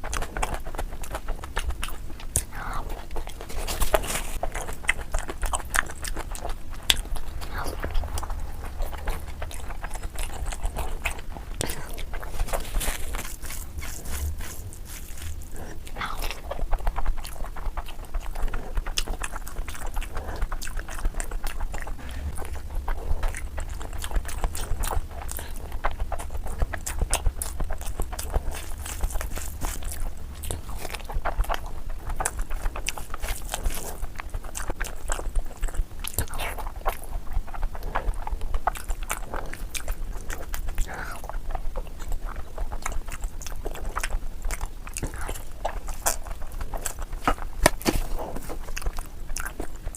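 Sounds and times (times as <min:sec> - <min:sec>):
low hum: 0:00.0 - 0:35.7
wet chewing and smacking: 0:00.0 - 0:49.9.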